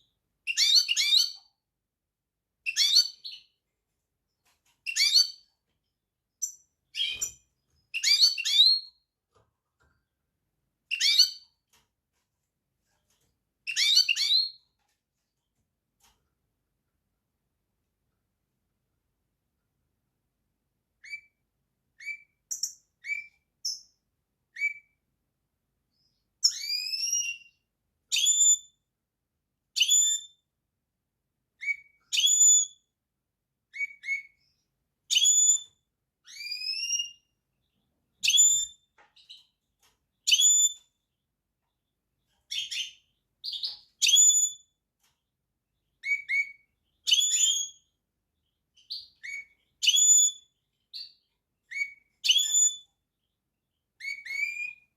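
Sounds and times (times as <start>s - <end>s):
finch whistled chirps: 0.5s - 1.4s, 2.7s - 3.5s, 4.9s - 5.4s, 6.4s - 9.0s, 10.9s - 11.5s, 13.7s - 14.6s, 21.0s - 21.4s, 22.0s - 23.9s, 24.5s - 25.0s, 25.9s - 28.7s, 29.8s - 30.4s, 31.6s - 32.8s, 33.7s - 37.3s, 38.2s - 39.5s, 40.2s - 40.8s, 42.5s - 44.7s, 46.0s - 47.9s, 48.8s - 53.0s, 54.0s - 54.9s.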